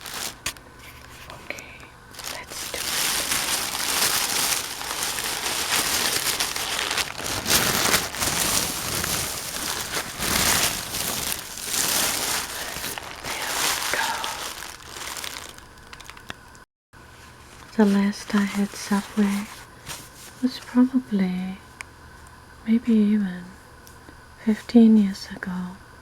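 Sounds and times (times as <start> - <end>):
wrapper paper crinkling: 0.0 - 1.5, 2.1 - 16.5, 17.6 - 20.4.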